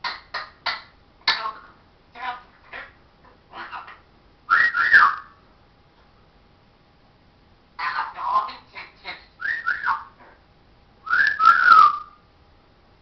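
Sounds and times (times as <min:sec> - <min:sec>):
parrot chattering calls: 0:01.4 - 0:04.1
parrot whistle: 0:04.5 - 0:05.4, 0:09.4 - 0:10.2, 0:11.0 - 0:12.2.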